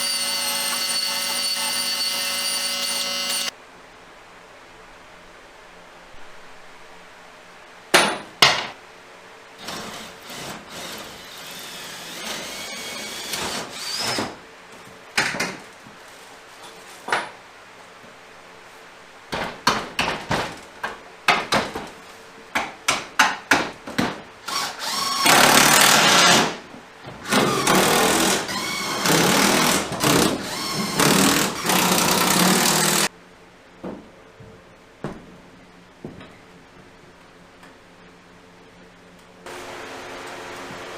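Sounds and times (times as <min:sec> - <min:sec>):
power drill running: 0:00.0 - 0:03.5, 0:10.0 - 0:14.2, 0:24.5 - 0:26.4, 0:27.3 - 0:33.1.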